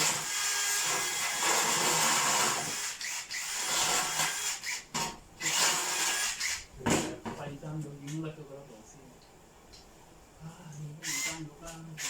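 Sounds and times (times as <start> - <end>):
power drill running: 0.0 - 6.7, 11.0 - 12.0.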